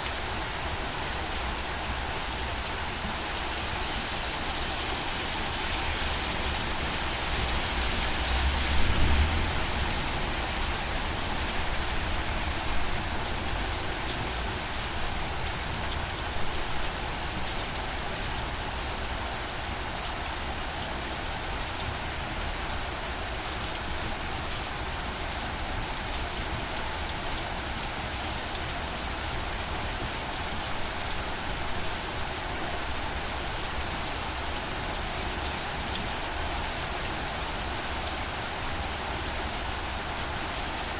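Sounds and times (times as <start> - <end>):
rain pattering on a surface: 0.0 - 40.9.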